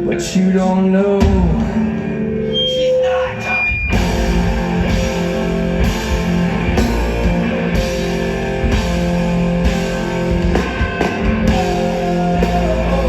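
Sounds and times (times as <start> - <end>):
bass: 0.0 - 13.0
distorted electric guitars: 0.0 - 13.0
drum kit: 1.1 - 2.2, 3.7 - 13.0.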